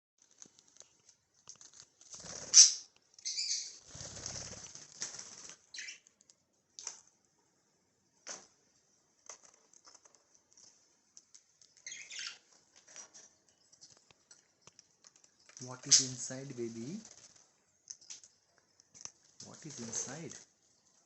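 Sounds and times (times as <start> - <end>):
budgerigars flapping wings: 1.6 - 2.8, 3.8 - 5.7, 15.7 - 17.5, 19.5 - 20.4.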